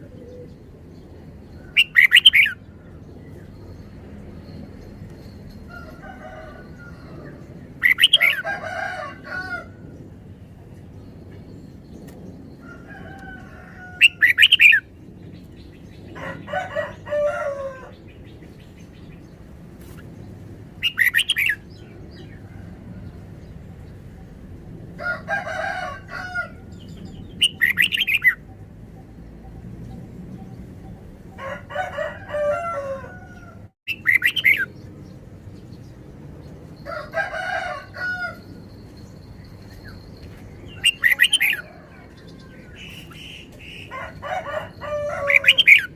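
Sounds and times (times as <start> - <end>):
bird singing: 0.0 - 5.7, 6.6 - 8.4, 14.0 - 16.5, 20.8 - 22.4, 26.6 - 31.3, 33.9 - 36.8, 38.3 - 44.0.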